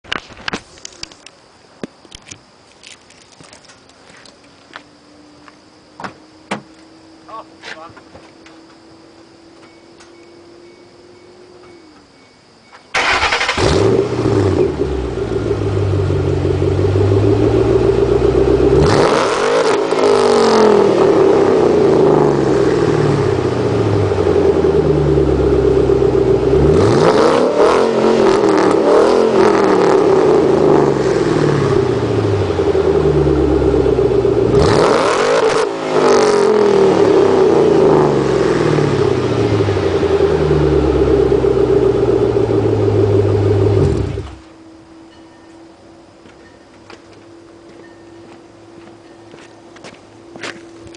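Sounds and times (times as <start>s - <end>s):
car engine starting: 12.9s - 44.8s
car engine idling and revving: 12.9s - 45.1s.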